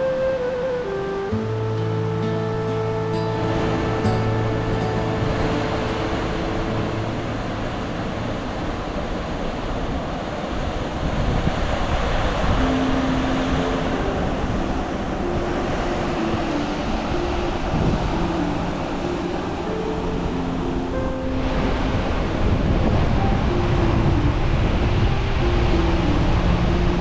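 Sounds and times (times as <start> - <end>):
soft held music notes: 0.0 - 9.6
waterfall rushing: 0.0 - 27.0.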